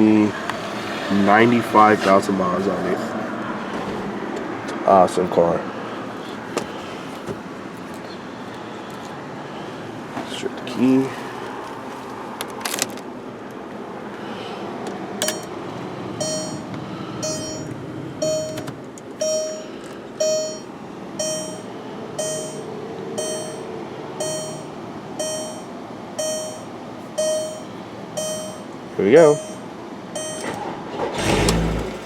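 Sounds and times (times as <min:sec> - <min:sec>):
clicks: 0:15.2 - 0:15.6
dashboard warning chime dinging: 0:15.2 - 0:31.6.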